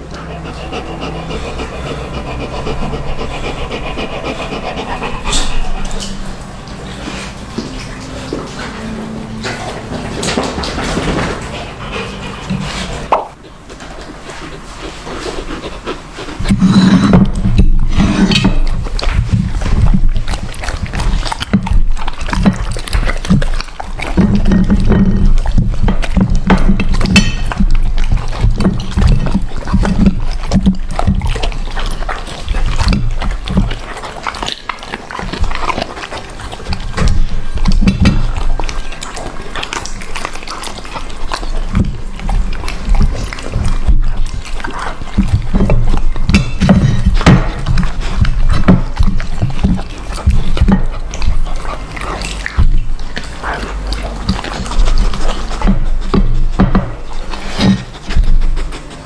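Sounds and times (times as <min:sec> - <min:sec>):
pet chewing wet chomps: 0:00.0 - 0:59.0.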